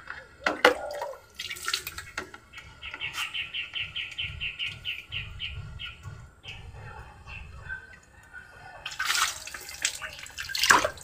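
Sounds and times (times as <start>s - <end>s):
bird chirping: 1.9s - 8.8s
water poured onto plant: 8.9s - 11.0s.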